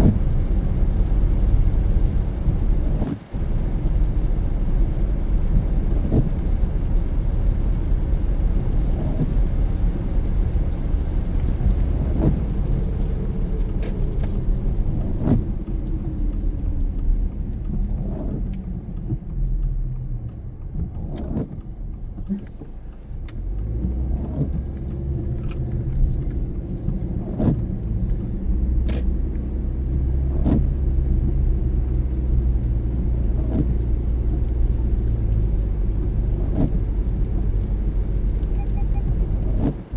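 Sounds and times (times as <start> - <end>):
tyres and engine rumble: 0.0 - 39.9.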